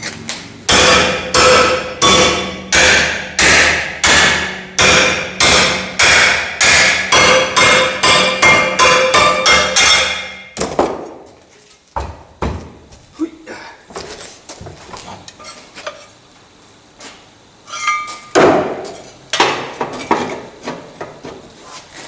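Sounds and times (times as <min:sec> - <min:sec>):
hammer striking steel bar: 0:00.7 - 0:11.0.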